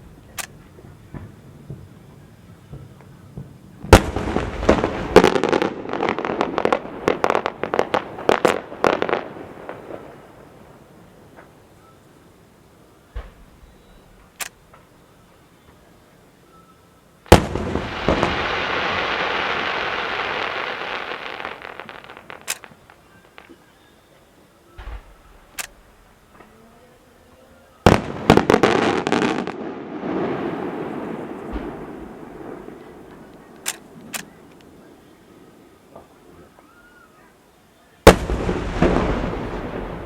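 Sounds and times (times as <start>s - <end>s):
firework bangs: 0.0s - 11.7s, 17.3s - 23.7s, 24.8s - 26.6s, 27.8s - 36.2s, 38.0s - 40.0s
firework crackling: 0.0s - 12.2s, 17.3s - 23.8s, 27.8s - 36.3s, 38.0s - 40.0s.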